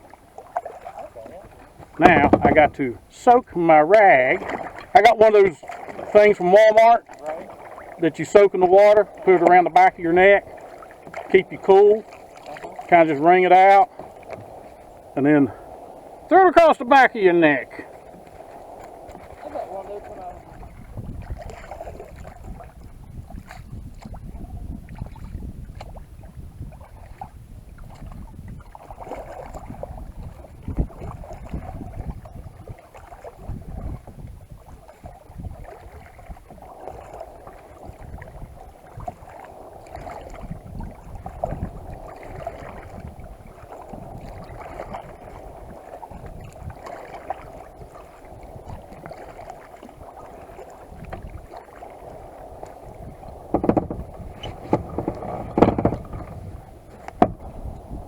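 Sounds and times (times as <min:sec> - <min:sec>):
kayak paddle strokes: 0:00.0 - 0:58.0
water splashing against hull: 0:00.0 - 0:58.0
wind rumbling on microphone: 0:00.0 - 0:58.0
loud knocks: 0:02.0 - 0:02.8, 0:53.5 - 0:56.4.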